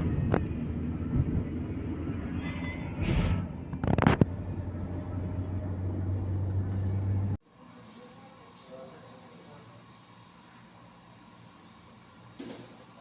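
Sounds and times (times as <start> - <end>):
vehicle engine and road rumble: 0.0 - 7.4.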